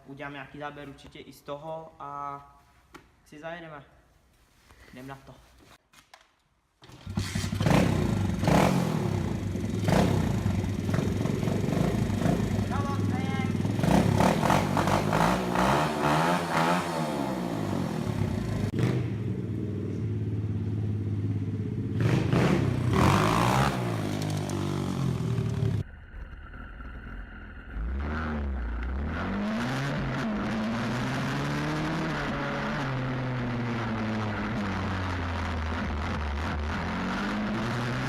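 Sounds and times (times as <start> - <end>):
motorbike engine revving: 6.8 - 25.8, 27.7 - 38.0.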